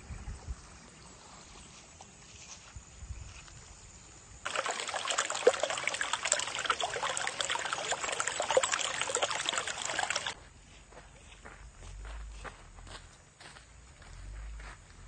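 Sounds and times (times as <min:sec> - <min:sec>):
stream splashing over rocks: 0:04.4 - 0:10.4.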